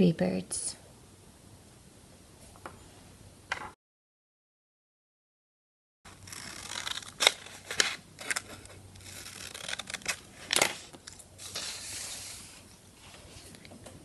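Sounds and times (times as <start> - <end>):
scissors snipping paper: 6.1 - 12.3
paper rustling and crinkling: 6.1 - 13.6.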